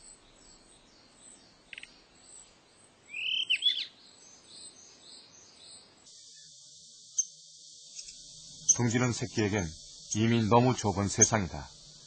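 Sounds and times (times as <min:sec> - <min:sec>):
faint high chirps: 0:00.0 - 0:12.0
bird calling with sweeping pitch: 0:03.1 - 0:03.9.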